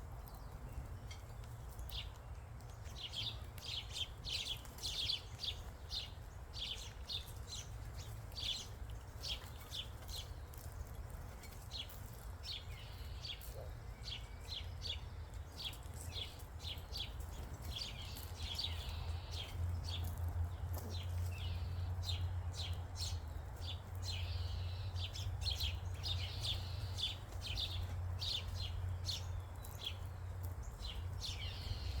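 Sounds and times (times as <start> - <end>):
songbirds chirping: 0.0 - 32.0.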